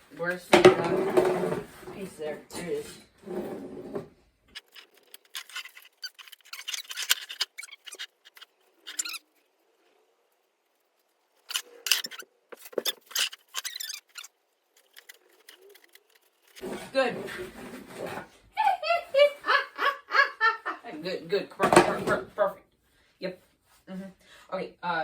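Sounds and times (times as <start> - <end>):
parts rustling and clicking: 4.4 - 18.3.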